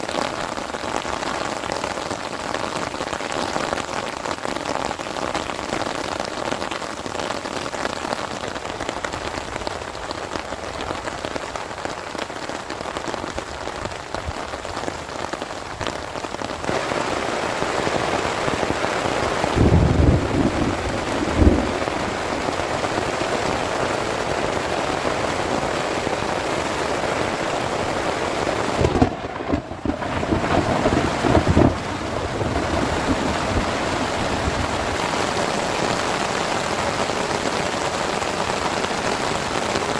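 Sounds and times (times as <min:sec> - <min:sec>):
heavy rain falling: 0:00.0 - 0:39.9
low rumbles of thunder: 0:19.4 - 0:23.6, 0:28.8 - 0:35.1.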